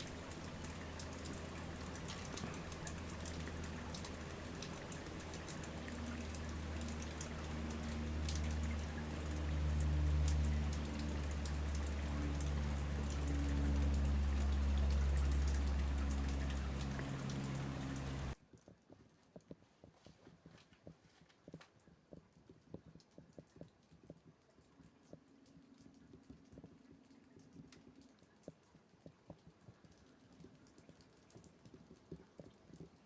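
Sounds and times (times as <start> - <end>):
faint scattered clicks: 0.0 - 18.4.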